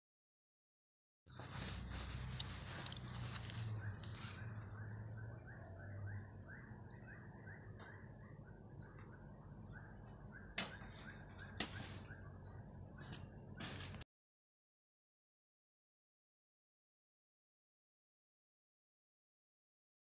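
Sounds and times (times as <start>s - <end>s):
bird chirping: 2.0s - 14.0s
sharp knocks: 10.6s - 11.9s.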